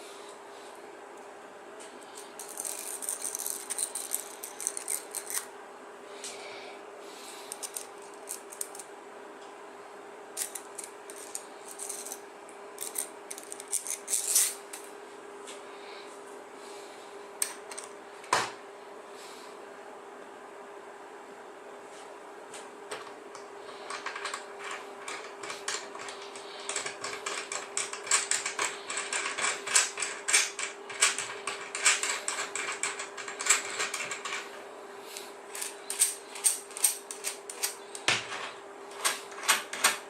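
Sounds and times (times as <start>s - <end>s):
steady low hum: 0.0s - 40.0s
metal tools clicking and rattling: 2.4s - 5.4s, 10.4s - 12.2s, 12.8s - 14.8s, 35.5s - 38.1s.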